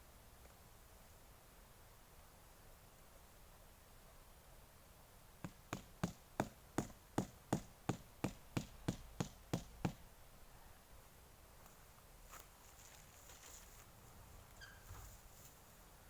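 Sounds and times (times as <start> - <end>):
sharp rhythmic knocks: 5.4 - 10.0.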